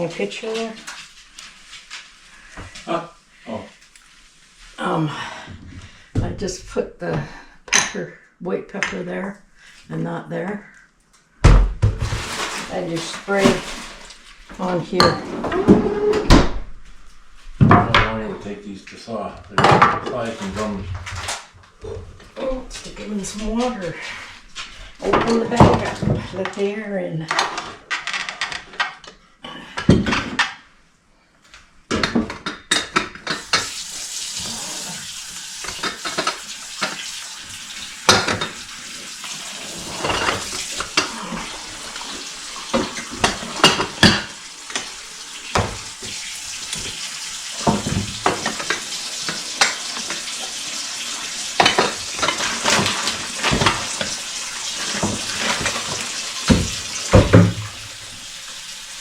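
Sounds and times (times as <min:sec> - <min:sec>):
dishes clinking and knocking: 0:19.6 - 0:20.2, 0:31.9 - 0:33.7, 0:38.1 - 0:38.6, 0:42.7 - 0:44.9, 0:47.6 - 0:50.3, 0:51.6 - 0:54.2, 0:54.9 - 0:57.8
tap running into sink: 0:32.0 - 0:58.3.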